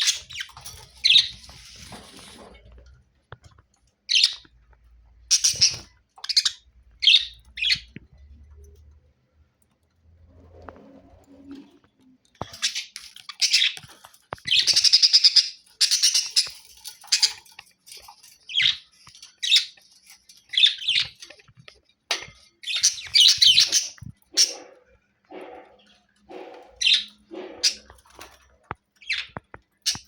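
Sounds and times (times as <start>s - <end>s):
budgerigars chirping and warbling: 0.0s - 2.5s, 4.0s - 4.5s, 5.2s - 8.0s, 12.4s - 28.4s, 29.0s - 30.0s.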